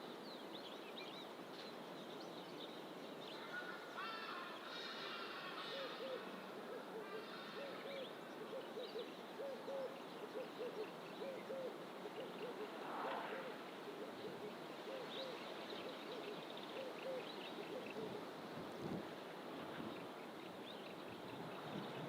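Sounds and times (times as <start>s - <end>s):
bird hooting: 4.7s - 18.2s.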